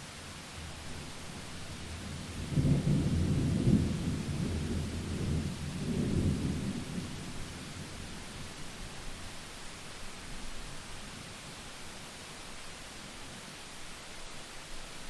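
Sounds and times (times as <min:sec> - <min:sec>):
steady rain: 0:00.0 - 0:15.0
thunder rumbling: 0:02.0 - 0:08.6.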